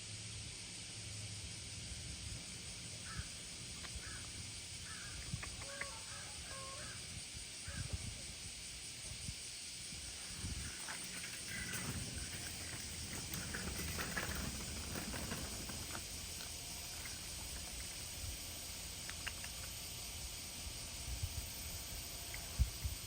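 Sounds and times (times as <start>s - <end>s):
steady outdoor hiss: 0.0s - 23.0s
crow cawing: 4.0s - 7.8s.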